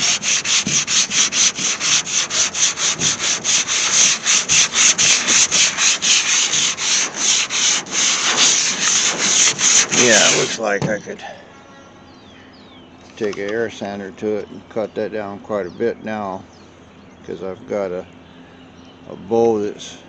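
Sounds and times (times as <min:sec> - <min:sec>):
sandpaper strokes: 0:00.0 - 0:10.7.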